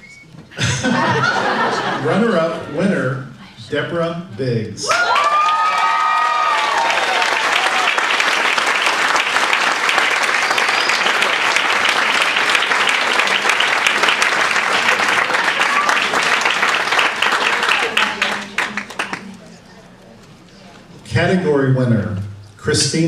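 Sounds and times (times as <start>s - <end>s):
audience applauding: 0.6s - 3.4s, 4.9s - 19.9s
audience cheering: 0.6s - 3.4s, 4.8s - 19.4s.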